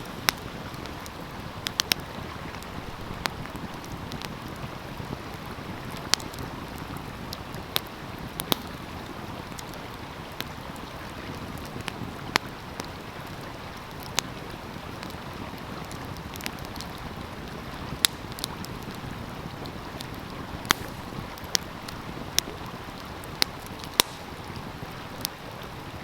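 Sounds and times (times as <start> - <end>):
flowing stream: 0.0 - 26.0
wood fire crackling: 0.0 - 26.0.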